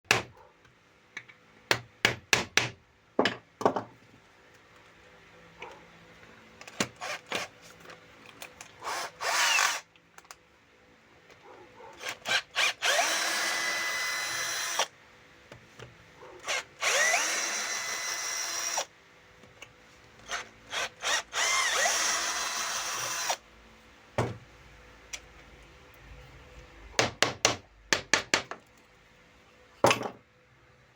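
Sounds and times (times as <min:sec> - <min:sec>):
power drill driving screws into wood: 0:06.7 - 0:07.5, 0:08.8 - 0:09.9, 0:12.0 - 0:14.9, 0:16.4 - 0:18.9, 0:20.3 - 0:23.4.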